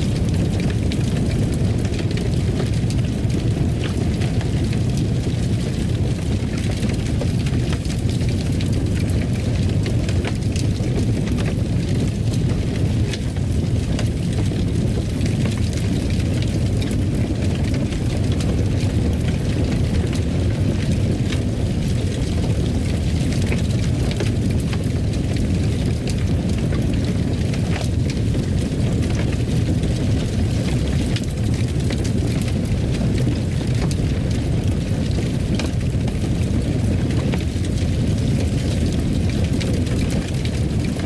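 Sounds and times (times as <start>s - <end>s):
crackles and pops of fire: 0.0s - 41.0s
fire roaring in fireplace: 0.0s - 41.0s.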